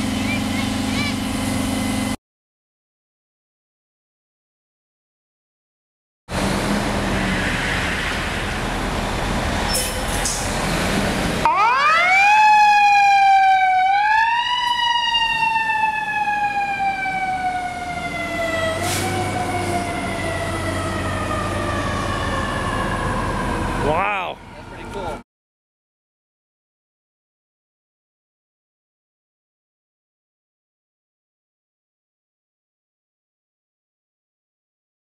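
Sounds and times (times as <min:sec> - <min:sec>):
fire truck siren winding: 0:11.4 - 0:24.0.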